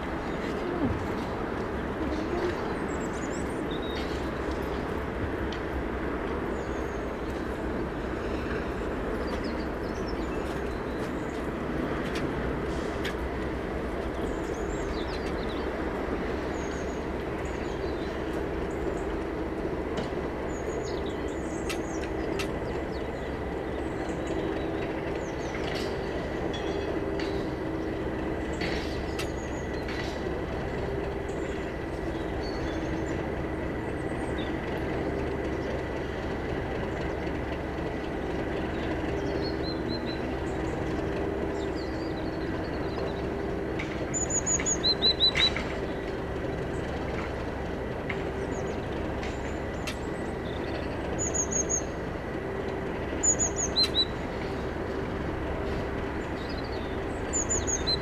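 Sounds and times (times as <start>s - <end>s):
train drone with low tones: 0.0s - 58.0s
birds chirping: 20.4s - 58.0s.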